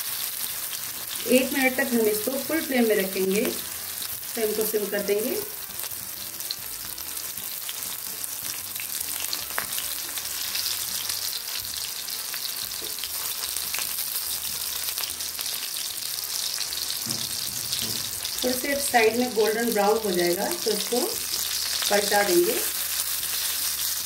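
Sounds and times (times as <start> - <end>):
patties sizzling in oil: 0.0 - 24.0.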